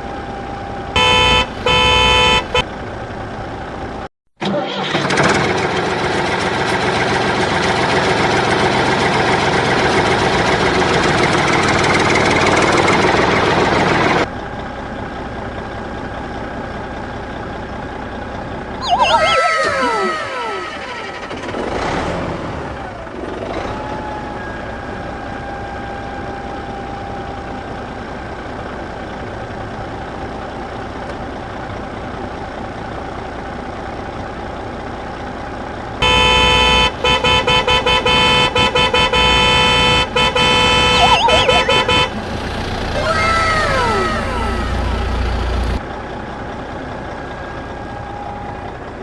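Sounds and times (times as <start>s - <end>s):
vehicle rumble: 0.0s - 49.0s
vehicle horn blasts: 1.0s - 2.6s, 36.0s - 42.2s.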